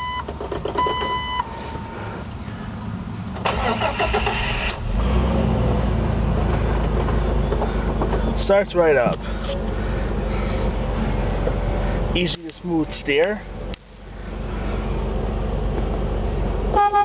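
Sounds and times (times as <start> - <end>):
car engine idling: 0.2 - 17.0
starter cranking engine: 3.4 - 4.9.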